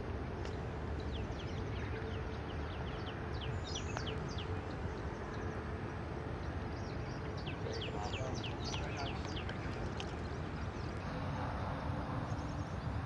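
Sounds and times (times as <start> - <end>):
low background rumble: 0.0 - 13.0
birds chirping: 0.5 - 13.0.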